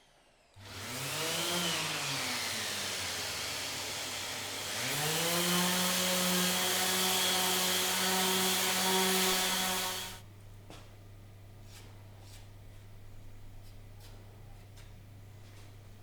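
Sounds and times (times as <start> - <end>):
power tool motor whirring: 0.0 - 10.2.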